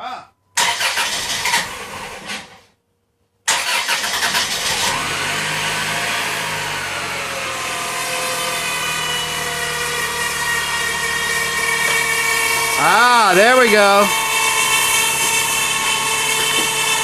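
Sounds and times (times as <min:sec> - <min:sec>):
car engine cranking and idling: 0:00.6 - 0:02.6, 0:03.5 - 0:17.0.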